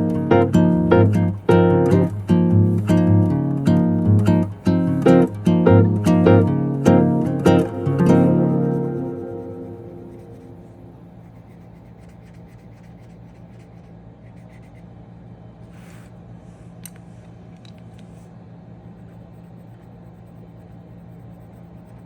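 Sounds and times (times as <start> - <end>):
steady low hum: 0.0 - 22.0
pencils scratching on paper: 8.7 - 14.9, 18.9 - 22.0.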